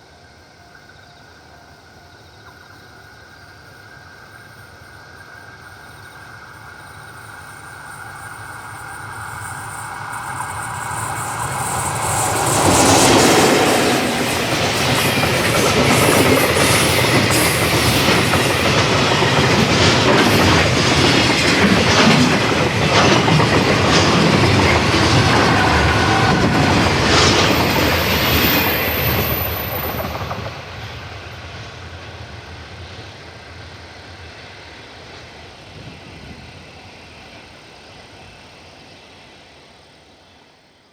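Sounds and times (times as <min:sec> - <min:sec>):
freight train rumble: 0:00.0 - 0:40.9
wagon wheels clacking over rail joints: 0:11.3 - 0:30.5.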